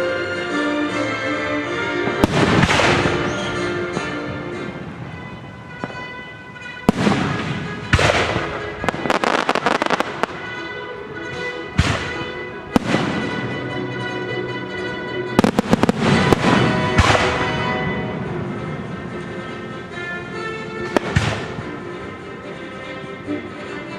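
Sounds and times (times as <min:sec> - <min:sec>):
orchestral music: 0:00.0 - 0:23.9
fireworks bangs and crackling: 0:02.0 - 0:14.2, 0:15.3 - 0:22.2.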